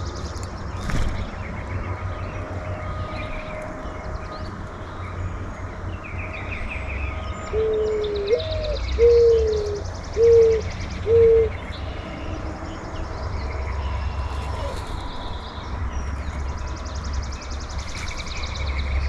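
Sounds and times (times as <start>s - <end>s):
songbirds chirping and trilling: 0.0s - 19.0s
dove cooing: 7.5s - 11.6s.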